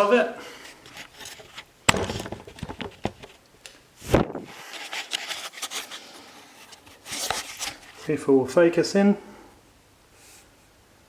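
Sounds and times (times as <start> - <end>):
camera handling rubbing: 0.7 - 3.4, 4.7 - 8.0.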